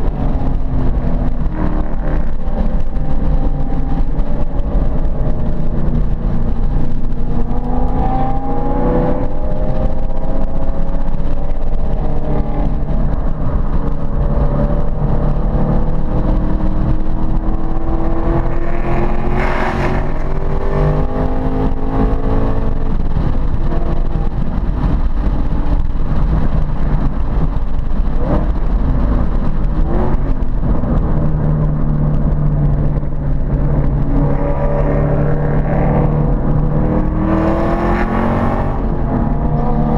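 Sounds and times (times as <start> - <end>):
car engine accelerating: 0.0 - 39.9
rush of noise: 0.0 - 39.9.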